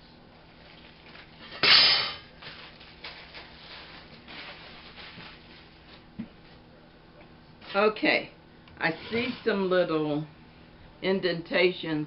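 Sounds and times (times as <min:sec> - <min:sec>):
plastic film rustling: 0:02.3 - 0:06.1
plastic film ripping: 0:02.4 - 0:05.8.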